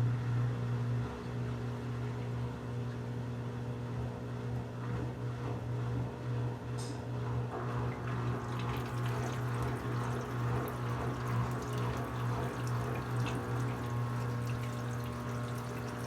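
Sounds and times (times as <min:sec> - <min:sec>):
water sloshing in washing machine: 0:07.5 - 0:16.0
low motor hum: 0:07.7 - 0:16.0.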